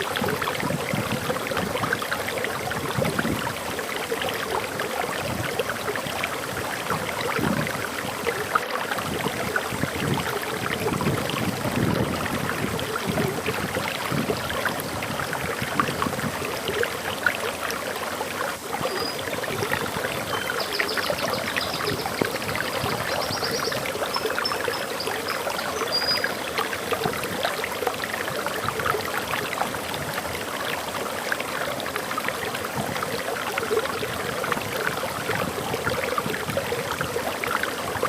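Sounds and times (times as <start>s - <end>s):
waterfall pouring: 0.0s - 38.0s
bird chirping: 20.2s - 26.5s.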